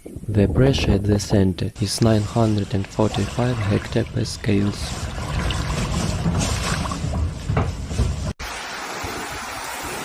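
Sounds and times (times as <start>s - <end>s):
storm wind and water rushing: 2.1s - 10.0s.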